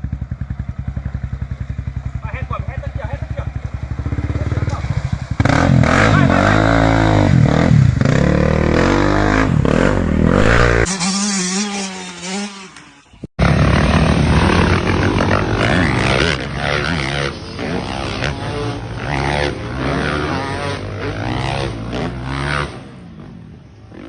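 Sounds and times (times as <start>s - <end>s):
dirt bike engines revving: 0.0s - 24.0s.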